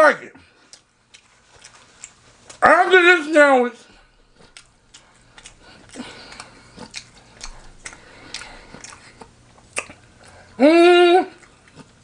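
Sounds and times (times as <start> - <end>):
chewing with wet mouth smacks: 0.6 - 2.6, 4.3 - 10.5, 11.3 - 12.0.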